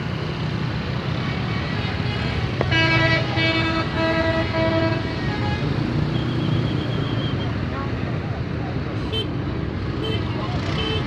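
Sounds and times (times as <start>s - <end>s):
bus engines running: 0.0s - 11.0s
musical bus horn: 2.6s - 5.7s.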